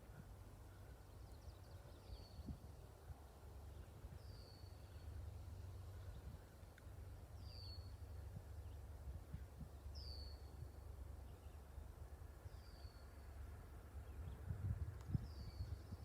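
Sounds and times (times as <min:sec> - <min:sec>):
wind rumbling on microphone: 0:02.1 - 0:04.6, 0:07.4 - 0:10.9, 0:13.9 - 0:16.0.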